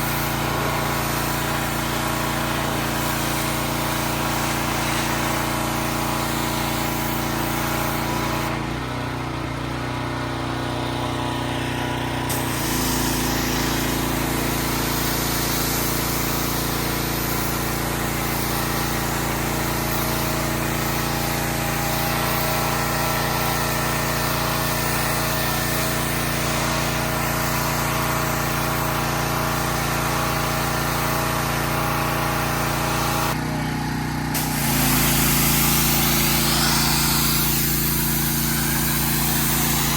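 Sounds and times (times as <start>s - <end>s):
motor humming: 31.5s - 39.9s.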